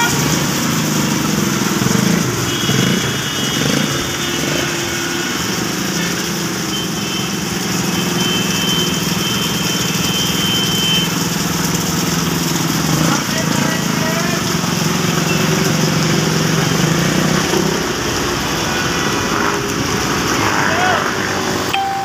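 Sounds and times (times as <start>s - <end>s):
heavy rain falling: 0.0s - 22.0s
vehicle engine humming: 0.0s - 22.0s.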